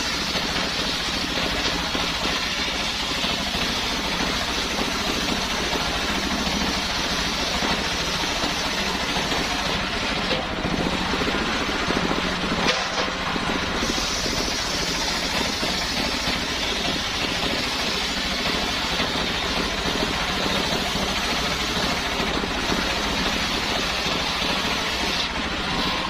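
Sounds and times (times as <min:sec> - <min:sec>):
sawmill engine running: 0:00.0 - 0:26.0
saw blade hiss: 0:13.7 - 0:25.3.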